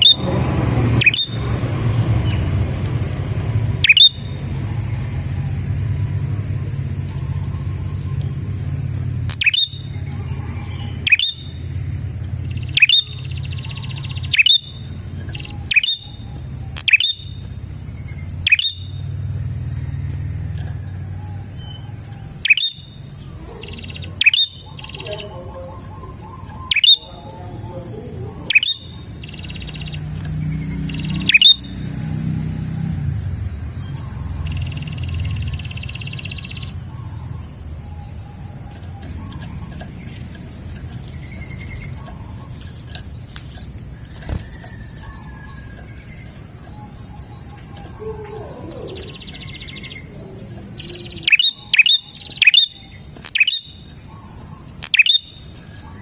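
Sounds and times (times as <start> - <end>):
buzzy bird trills: 0.0 - 32.9, 33.6 - 56.0
bird chirping: 0.0 - 56.0.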